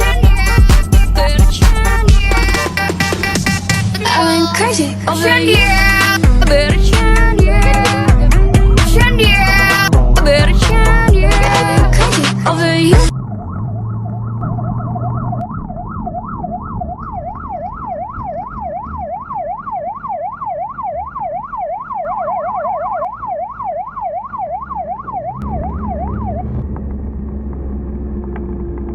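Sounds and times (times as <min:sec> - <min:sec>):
siren wailing in fast yelp: 0:00.0 - 0:04.7, 0:12.6 - 0:26.6
low vehicle engine rumble: 0:00.0 - 0:28.9
second siren: 0:00.8 - 0:04.6, 0:13.0 - 0:26.7.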